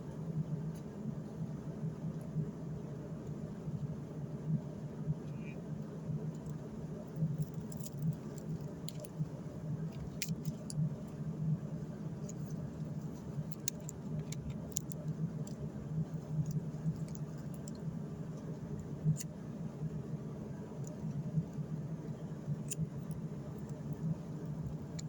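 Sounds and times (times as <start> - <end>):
light clicks and ticks: 6.3 - 9.2, 9.9 - 10.8, 12.2 - 19.4.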